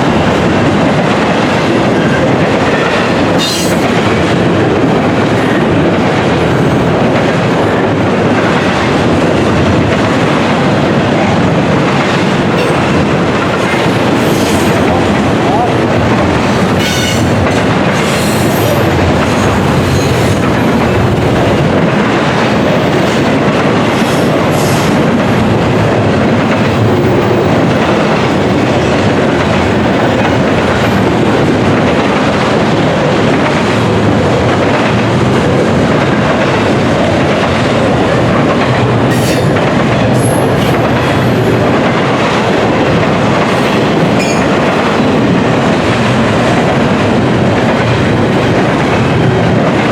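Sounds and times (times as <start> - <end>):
train wheels clattering over rail joints: 0.3 - 49.9.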